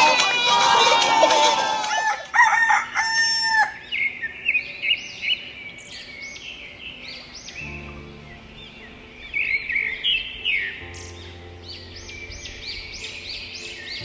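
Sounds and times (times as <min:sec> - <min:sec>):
rooster crowing: 0:00.0 - 0:03.8
small birds chirping: 0:02.0 - 0:14.0.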